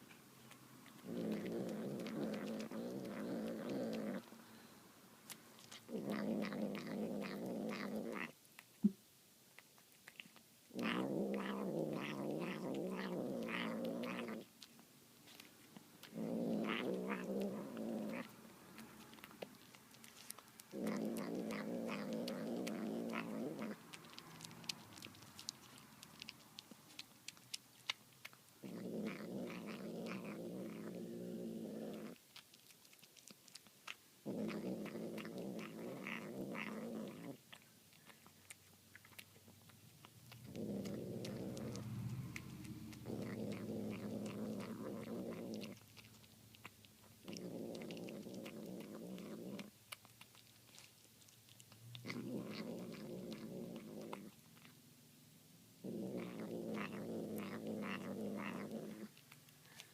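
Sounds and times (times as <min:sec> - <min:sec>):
wet chewing and smacking: 0:00.0 - 0:54.8, 0:55.9 - 0:59.9
cat growling low: 0:00.8 - 0:04.3, 0:05.7 - 0:08.4, 0:10.7 - 0:14.6, 0:16.0 - 0:27.5, 0:28.6 - 0:32.2, 0:34.2 - 0:37.6, 0:40.0 - 0:46.6, 0:47.2 - 0:50.9, 0:51.9 - 0:54.7, 0:55.8 - 0:59.9.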